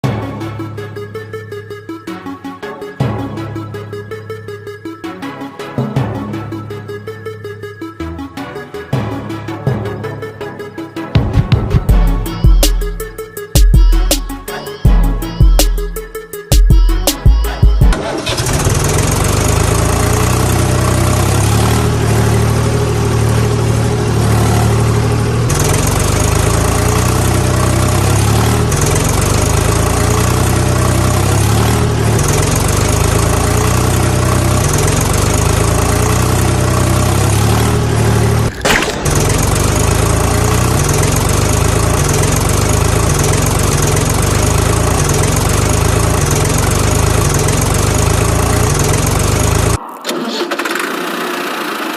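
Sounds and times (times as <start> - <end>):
heavy vehicle engine idling: 16.9 - 51.6.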